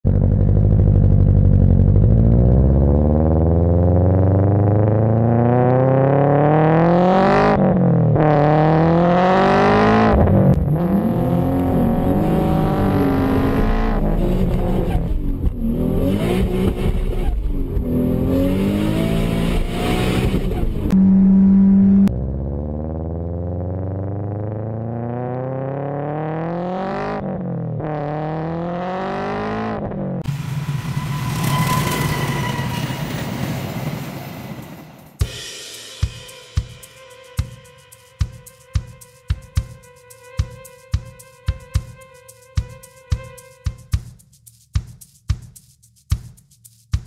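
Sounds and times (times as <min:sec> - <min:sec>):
car engine accelerating: 0:00.0 - 0:33.5
steady tone: 0:09.8 - 0:16.2, 0:20.8 - 0:22.2.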